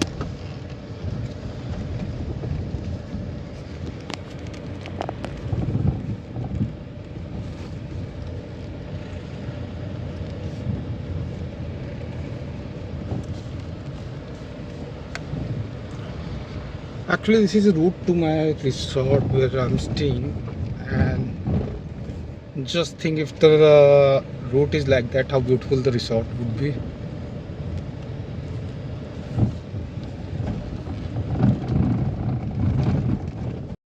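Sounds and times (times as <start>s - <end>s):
wind on microphone: 0.0s - 22.5s, 26.8s - 33.8s
vehicle engine and tyre rumble: 0.0s - 33.8s
vehicle bumps: 18.7s - 22.4s, 29.2s - 33.8s.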